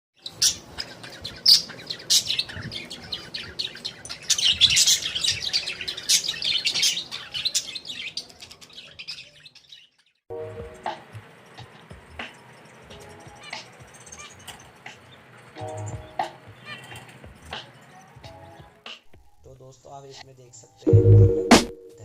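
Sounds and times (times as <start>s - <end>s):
parrot chirping and calling: 0.2s - 10.1s, 13.0s - 14.9s, 15.6s - 17.5s.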